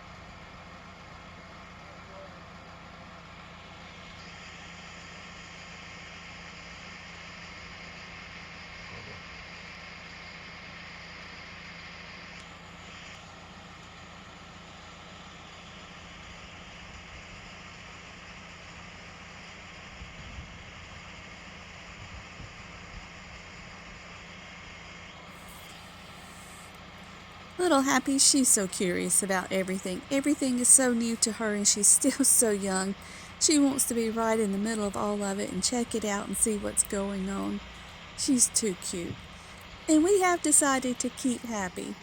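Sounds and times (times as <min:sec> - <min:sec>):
tractor engine running: 0:24.7 - 0:42.0.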